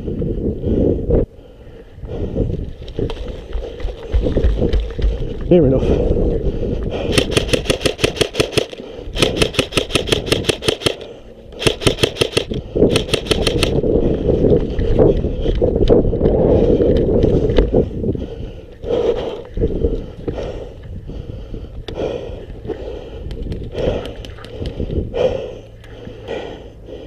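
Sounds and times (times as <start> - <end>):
airsoft rifle firing bursts: 7.1 - 13.8
scattered clicks: 7.1 - 13.8.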